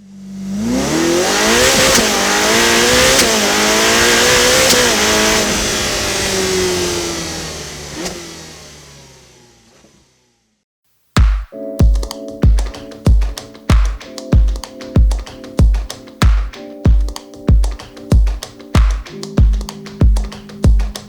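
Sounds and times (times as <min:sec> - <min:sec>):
car engine accelerating hard: 0:00.0 - 0:10.6.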